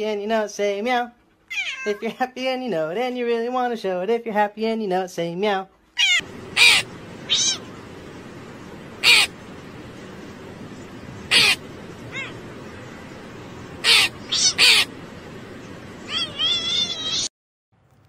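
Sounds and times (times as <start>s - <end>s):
cat meowing: 1.5s - 2.0s, 6.0s - 7.7s, 11.3s - 12.4s, 13.8s - 14.9s, 16.0s - 17.3s
crow cawing: 6.0s - 7.7s, 8.9s - 9.4s, 11.2s - 12.4s, 13.8s - 15.0s.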